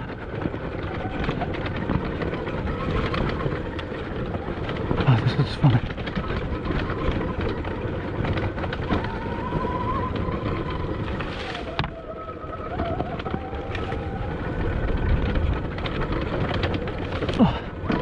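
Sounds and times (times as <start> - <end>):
rattling clatter from bike: 0.0 - 18.0
wind buffeting microphone: 0.0 - 18.0
electric motor whine: 6.0 - 18.0.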